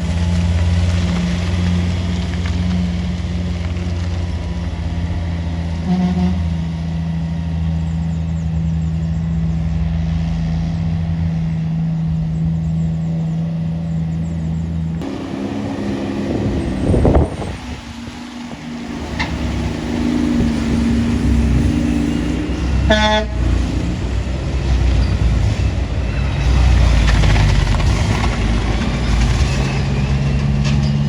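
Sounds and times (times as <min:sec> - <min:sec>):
heavy truck engine pulling: 0:00.0 - 0:31.0
vehicle passing: 0:15.0 - 0:30.9.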